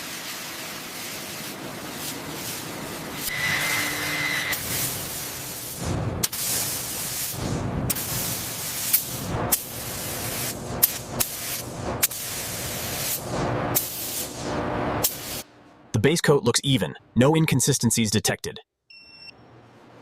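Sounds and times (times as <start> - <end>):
paint spray gun hissing: 4.6 - 13.2.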